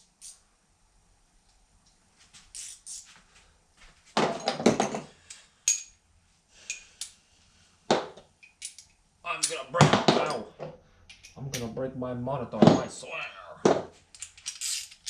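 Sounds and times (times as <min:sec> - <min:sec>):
tools and parts knocking: 0:04.2 - 0:05.1.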